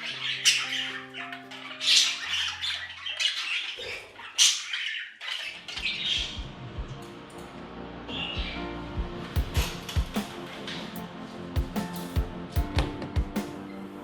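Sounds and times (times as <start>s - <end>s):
budgies chattering and squawking: 0.0s - 6.4s
background music with low beat: 5.8s - 14.0s.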